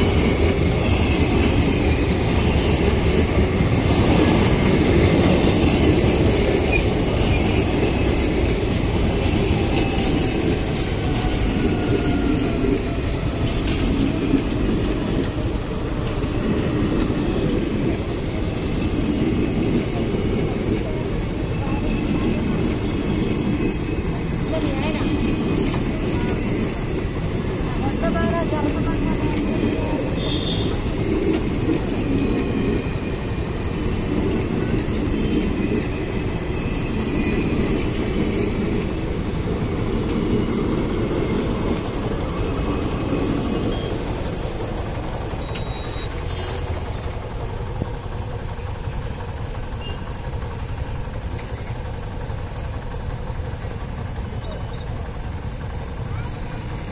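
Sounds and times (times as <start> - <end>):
train wheels rolling on rails: 0.0 - 56.9.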